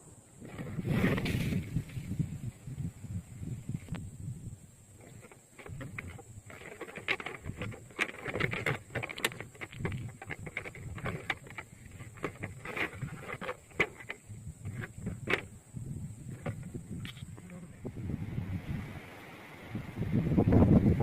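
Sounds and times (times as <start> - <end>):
sharp clicks and knocks: 5.0 - 15.5.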